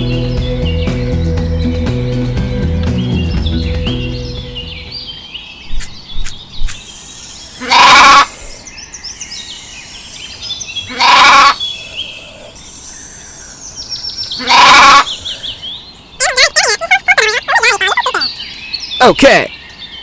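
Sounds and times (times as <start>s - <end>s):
faint birds chirping: 0.0s - 20.0s
animal bleating: 7.2s - 8.6s, 10.9s - 12.9s, 14.3s - 15.5s.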